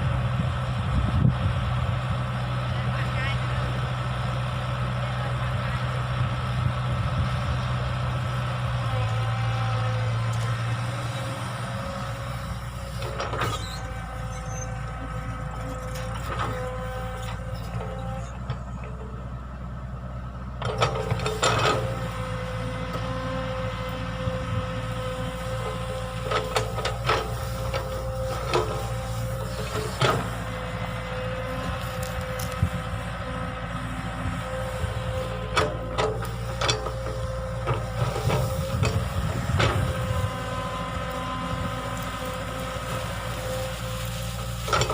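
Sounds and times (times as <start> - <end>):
excavator engine running: 0.0 - 44.9.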